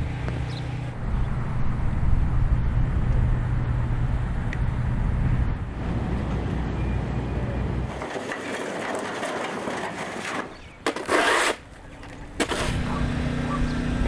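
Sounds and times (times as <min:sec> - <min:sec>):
low engine-like rumble: 0:00.0 - 0:07.9.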